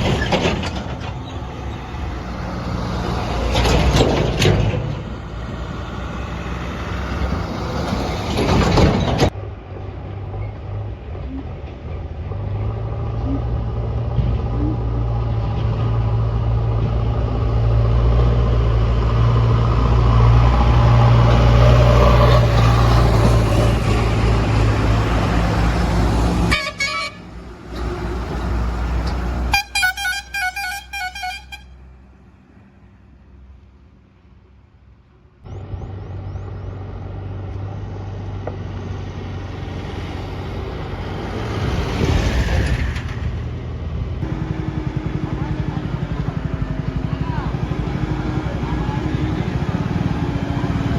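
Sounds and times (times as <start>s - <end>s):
heavy diesel engine under load: 0.0s - 50.9s
vehicle horn beeps: 26.5s - 27.2s, 29.5s - 31.8s.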